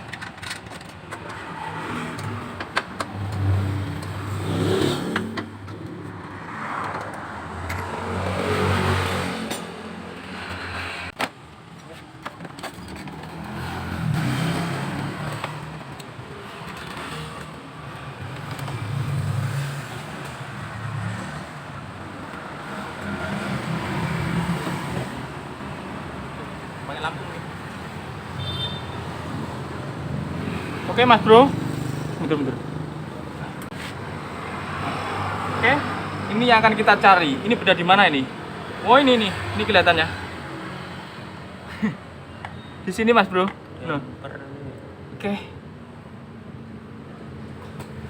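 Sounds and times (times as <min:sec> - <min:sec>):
scooter engine revving: 0:01.7 - 0:06.7, 0:13.1 - 0:39.6.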